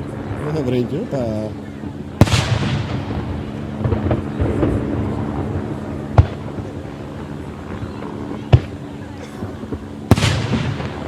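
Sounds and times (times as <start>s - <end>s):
fireworks crackle and rumble: 0.0s - 11.0s.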